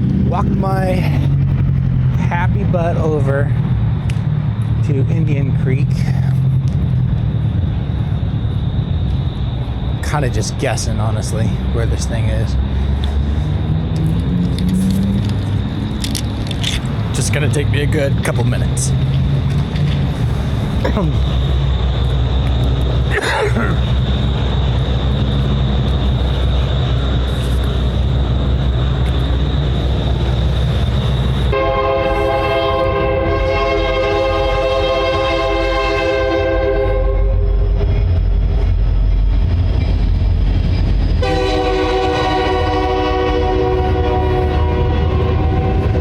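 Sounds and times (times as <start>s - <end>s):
freight train rumbling: 0.0s - 46.0s
locomotive horn blasts: 31.5s - 37.5s, 41.2s - 46.0s.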